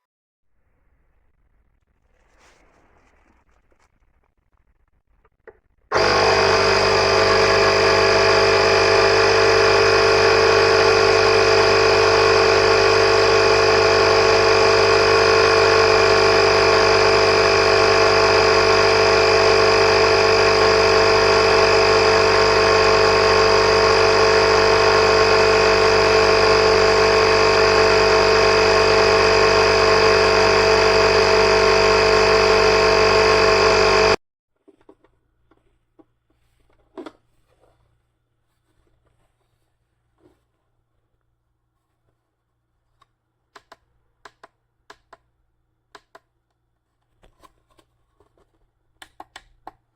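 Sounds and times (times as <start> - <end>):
air compressor buzzing hum: 5.9 - 34.2.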